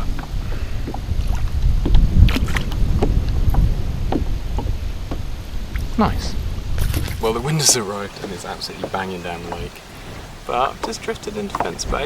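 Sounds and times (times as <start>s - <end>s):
small water splashes: 0.0s - 4.7s, 6.8s - 12.0s
wind buffeting microphone: 0.0s - 12.0s
light knocks: 6.8s - 9.9s, 10.7s - 12.0s.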